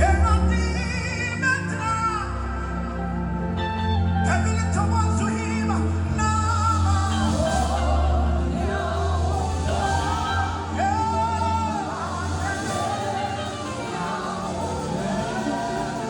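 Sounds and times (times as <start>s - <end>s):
bass and keyboard backing: 0.0s - 16.0s
person singing: 0.0s - 16.0s.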